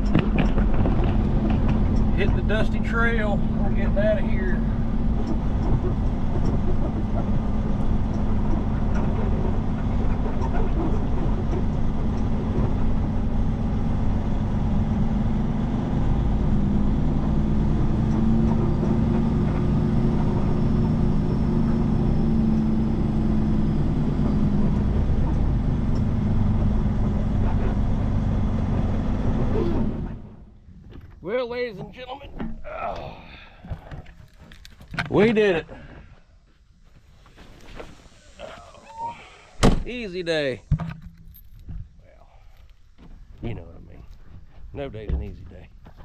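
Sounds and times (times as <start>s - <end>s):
diesel truck engine driving: 0.0s - 32.6s.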